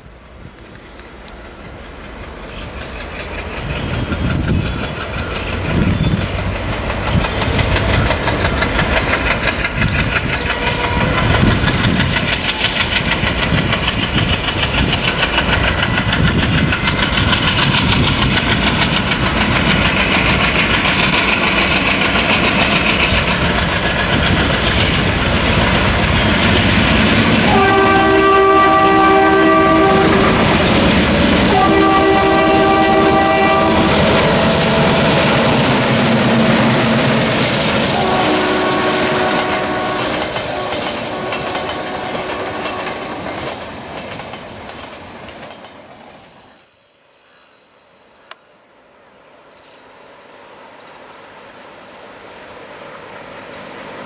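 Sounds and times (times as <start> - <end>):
diesel locomotive engine chugging: 0.4 - 45.9
train horn blasts: 10.5 - 11.5, 27.4 - 43.3.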